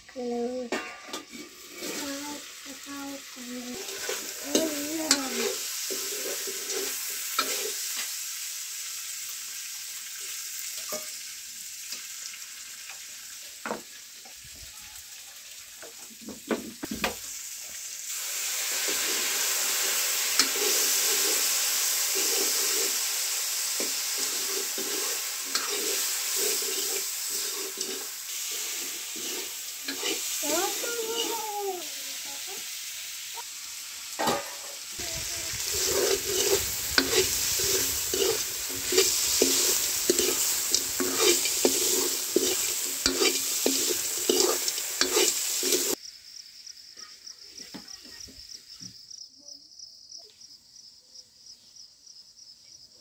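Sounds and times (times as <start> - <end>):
food sizzling in a pan: 0.0 - 49.2
stirring utensil scraping: 22.1 - 23.0, 23.8 - 31.4, 35.2 - 46.0.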